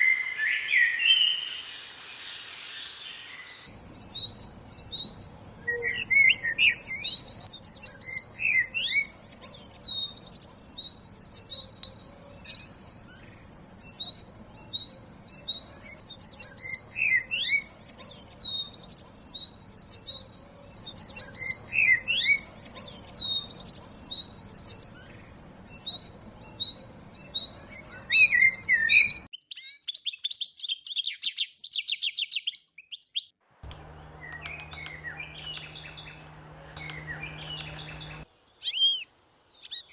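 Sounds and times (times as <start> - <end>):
songbirds singing and chirping: 0.0 - 39.9
low hum: 33.6 - 38.3
high buzzy bird trill: 33.6 - 39.0.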